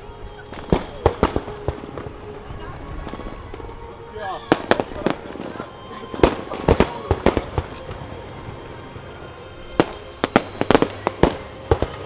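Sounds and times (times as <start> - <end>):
fireworks bangs: 0.5 - 12.0.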